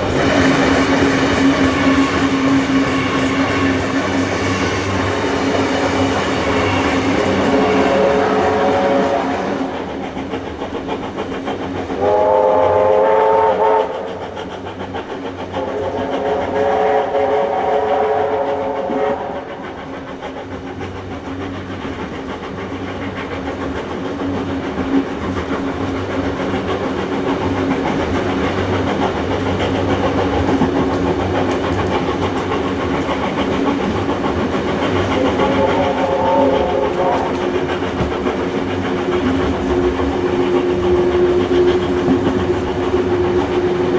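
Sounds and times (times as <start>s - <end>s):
steam locomotive whistle: 0.0s - 9.9s, 12.0s - 14.2s, 15.6s - 19.5s, 35.2s - 37.9s, 39.1s - 43.9s
carriages rolling on rails: 0.0s - 43.9s.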